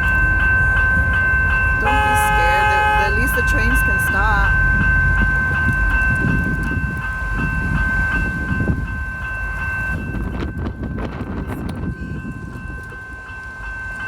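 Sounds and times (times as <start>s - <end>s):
light rail train rumble: 0.0s - 14.0s
high-pitched tone: 0.9s - 6.4s.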